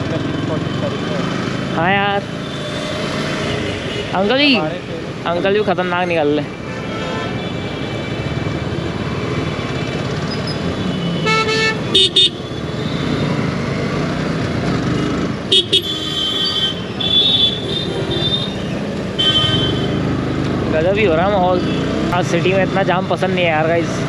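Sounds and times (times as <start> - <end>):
motorcycle engine and road noise: 0.0 - 24.0
vehicle horns honking: 6.6 - 8.1, 10.4 - 13.0, 15.0 - 20.0.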